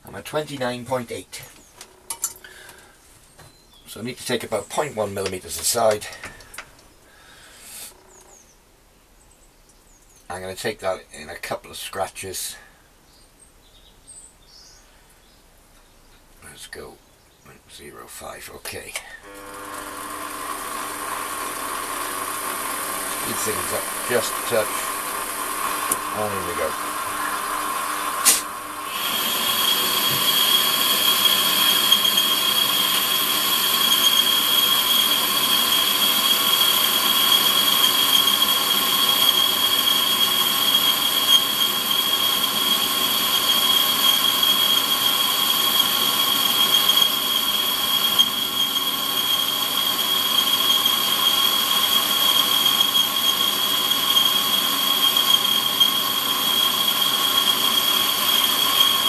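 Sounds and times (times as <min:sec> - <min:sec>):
metal lathe whining: 0:19.2 - 0:59.0.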